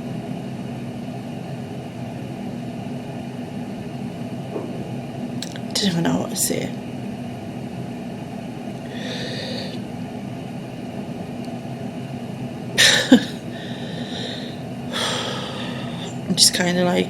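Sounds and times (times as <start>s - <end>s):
woman breathing unsteadily: 8.8s - 9.9s, 12.8s - 16.2s
woman sniffing: 8.9s - 9.8s, 12.8s - 16.2s
woman sobbing: 12.8s - 16.2s.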